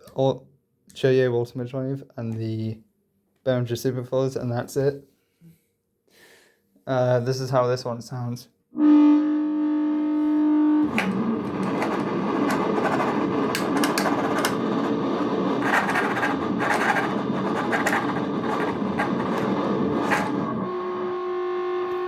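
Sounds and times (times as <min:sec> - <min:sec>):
electronic droning tone: 0:09.3 - 0:22.0
crackling distorted noise: 0:10.8 - 0:21.2.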